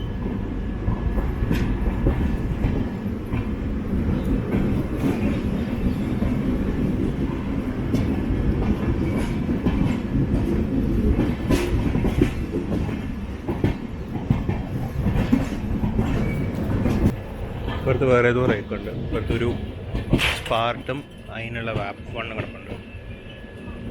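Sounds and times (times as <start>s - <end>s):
train coach rumbling: 0.0s - 23.9s.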